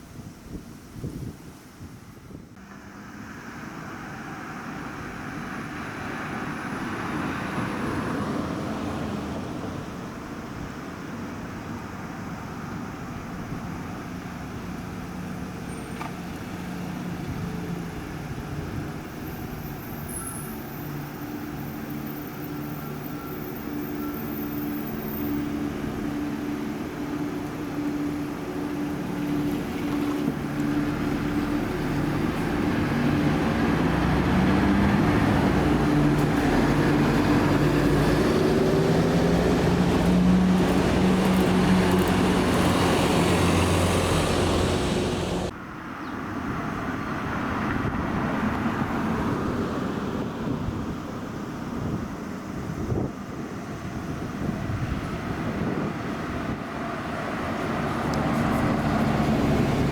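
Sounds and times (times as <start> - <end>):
road noise: 0.0 - 59.9
bus diesel engines running: 2.1 - 59.9.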